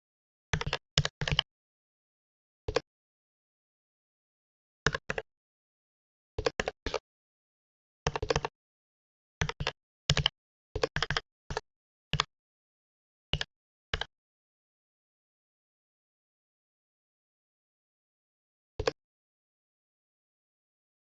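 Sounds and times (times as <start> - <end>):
computer keyboard keystrokes: 0.6 - 1.4, 8.1 - 8.5, 9.4 - 11.6, 13.4 - 14.1.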